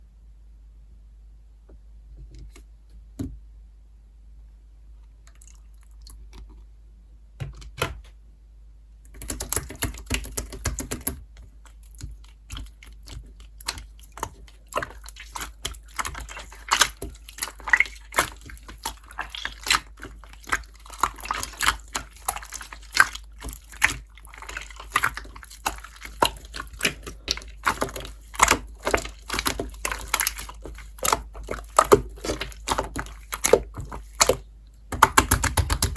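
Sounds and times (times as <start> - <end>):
wet clicking and popping: 9.1 - 35.9
slime squeezed by hand: 13.7 - 34.4.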